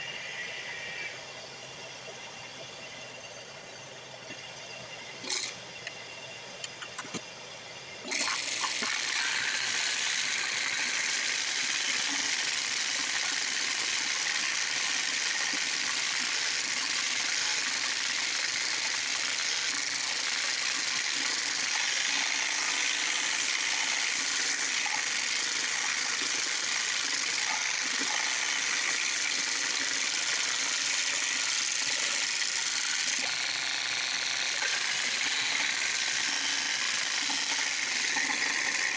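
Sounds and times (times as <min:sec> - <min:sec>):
drum sander and vacuum hissing: 0:08.0 - 0:38.9.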